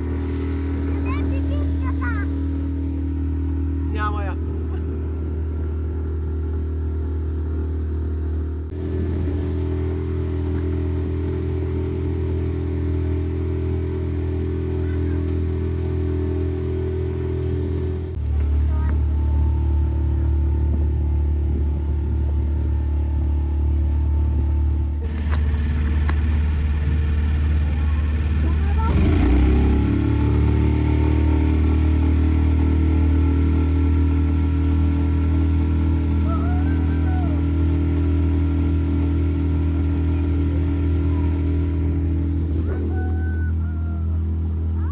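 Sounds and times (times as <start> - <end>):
motorboat engine drone: 0.0 - 44.9.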